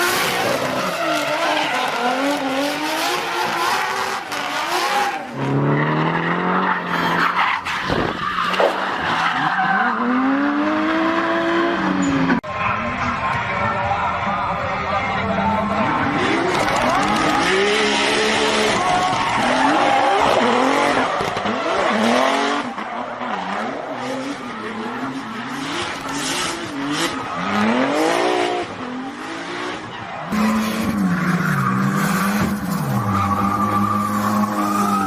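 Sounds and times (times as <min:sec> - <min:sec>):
tyres screeching: 0:30.0 - 0:35.0.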